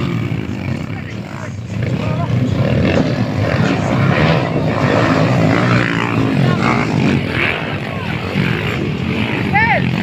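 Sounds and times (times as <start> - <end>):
dirt bike engines running hard: 0.0 - 10.0.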